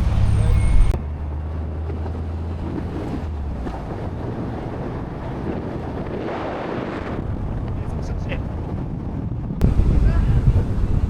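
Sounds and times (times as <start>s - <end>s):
engine hum: 0.0s - 11.0s
road noise: 0.0s - 11.0s
wind on microphone: 0.0s - 11.0s.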